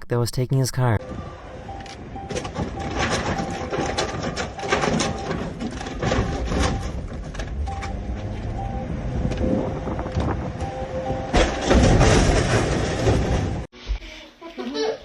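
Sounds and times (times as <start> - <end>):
truck and street noise: 0.8 - 13.7
short beeping tone: 1.7 - 3.6, 7.7 - 9.0, 10.6 - 11.4
clanks and knocks: 2.2 - 8.4, 9.2 - 13.7.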